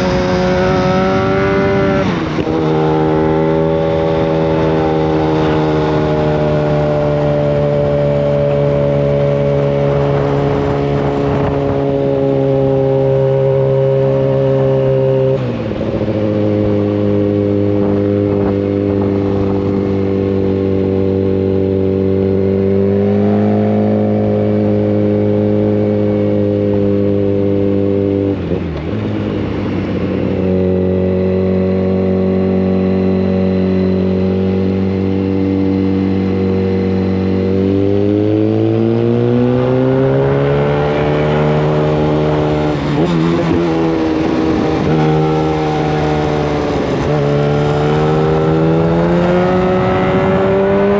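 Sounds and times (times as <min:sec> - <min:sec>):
loud motorcycle engine while riding: 0:00.0 - 0:50.9.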